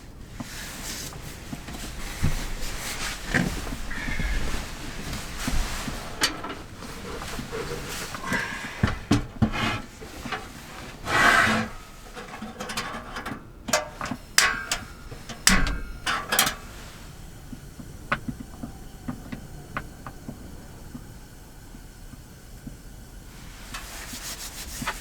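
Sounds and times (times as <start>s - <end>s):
rubbing rustle: 0.4s - 13.3s, 23.6s - 25.0s
sharp clicks and knocks: 12.2s - 16.7s.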